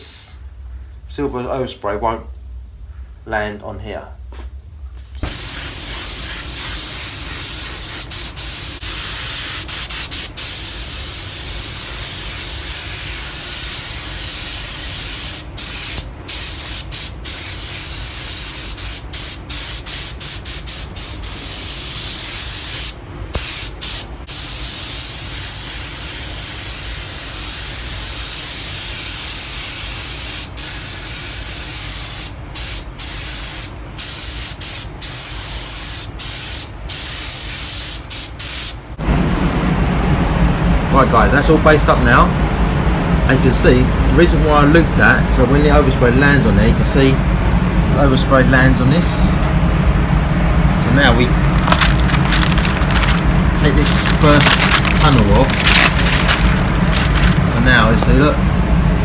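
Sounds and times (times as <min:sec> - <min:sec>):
paint spray gun hissing: 0:05.2 - 0:38.8, 0:51.4 - 0:57.5.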